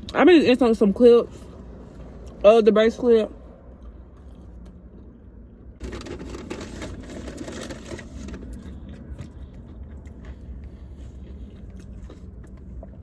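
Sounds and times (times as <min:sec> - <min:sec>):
crinkling rustling handling noise: 0:05.8 - 0:09.3.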